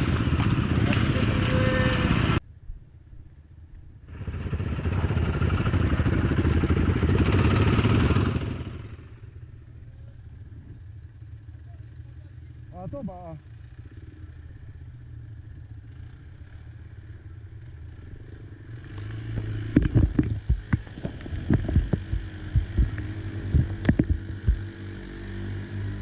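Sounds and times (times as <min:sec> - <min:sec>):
quad engine revving: 0:04.1 - 0:09.3, 0:15.9 - 0:26.0
quad engine idling: 0:04.1 - 0:26.0.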